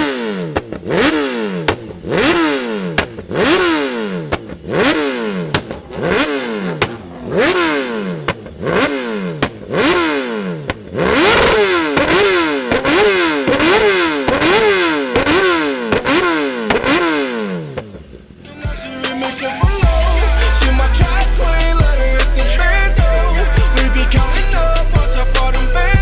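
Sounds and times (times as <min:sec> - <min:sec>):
motorcycle engine revving: 0:00.0 - 0:18.5.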